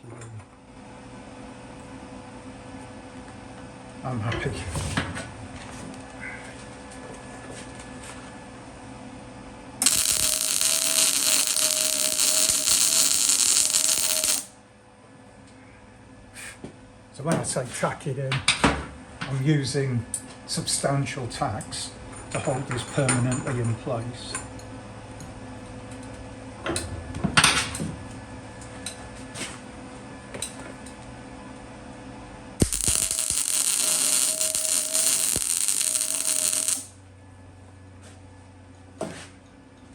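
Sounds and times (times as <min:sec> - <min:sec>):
steel pieces clinking: 0:09.8 - 0:14.5, 0:32.6 - 0:36.9
welding arc crackling: 0:09.8 - 0:14.5, 0:32.6 - 0:36.9.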